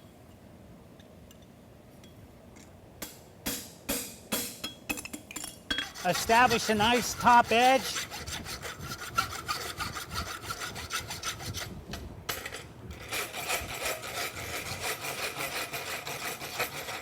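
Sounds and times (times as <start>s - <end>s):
rasp filing metal: 5.7s - 11.8s, 13.0s - 17.0s.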